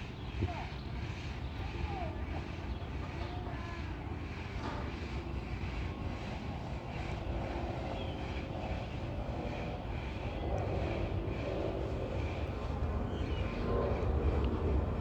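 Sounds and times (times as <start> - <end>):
jet engines rumbling: 5.7 - 15.0.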